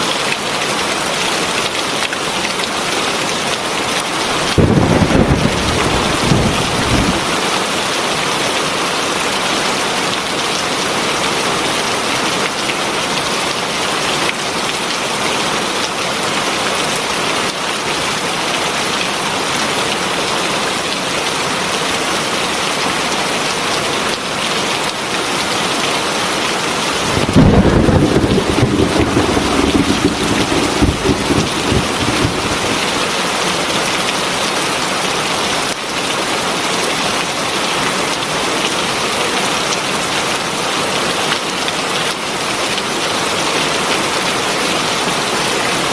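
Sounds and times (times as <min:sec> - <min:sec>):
heavy rain falling: 0:00.0 - 0:45.9
thunder rumbling: 0:04.3 - 0:07.8, 0:26.9 - 0:33.5.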